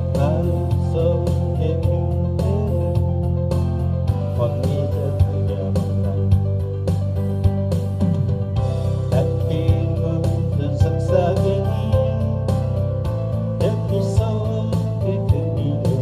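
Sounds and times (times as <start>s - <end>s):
person singing: 0.0s - 6.5s, 8.1s - 16.0s
bass: 0.0s - 16.0s
steady drum beat: 2.4s - 16.0s.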